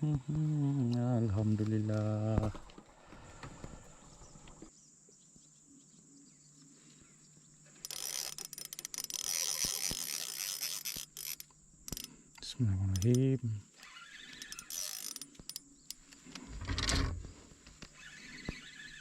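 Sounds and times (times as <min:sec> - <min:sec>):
fishing reel clicking and whirring: 0:07.8 - 0:16.2, 0:18.0 - 0:19.0.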